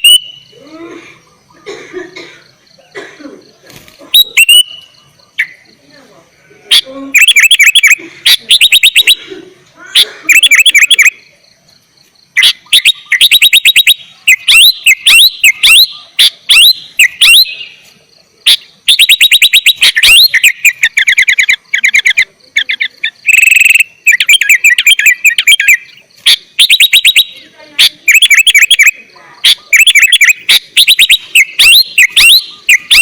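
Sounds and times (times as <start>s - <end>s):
bird singing clipped notes: 0.0s - 0.6s, 3.6s - 5.9s, 12.0s - 33.0s
harsh buzzy bird call: 0.0s - 6.0s, 6.6s - 11.4s, 12.2s - 33.0s.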